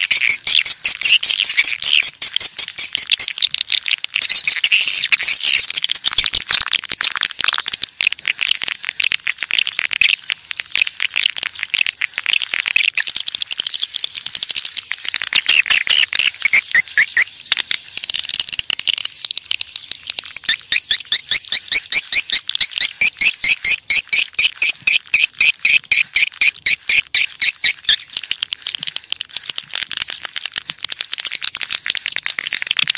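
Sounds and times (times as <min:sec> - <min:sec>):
loud repeated chirps: 0:00.0 - 0:06.6, 0:13.6 - 0:18.8, 0:19.5 - 0:30.4
swiftlets twittering: 0:00.0 - 0:32.9.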